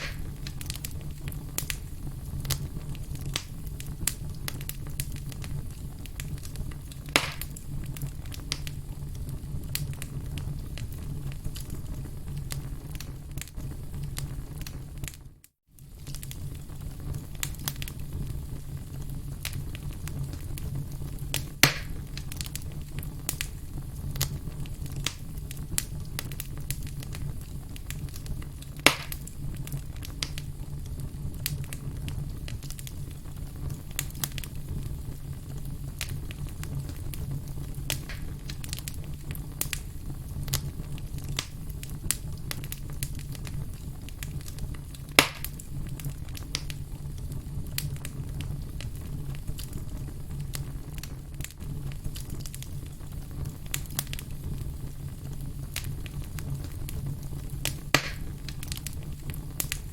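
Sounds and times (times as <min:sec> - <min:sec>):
sharp loud fire pops: 0:00.0 - 0:00.7, 0:07.1 - 0:07.6, 0:21.6 - 0:22.0, 0:28.8 - 0:29.3, 0:37.9 - 0:38.6, 0:45.2 - 0:45.6, 0:57.8 - 0:58.4
campfire crackling: 0:00.0 - 0:59.9.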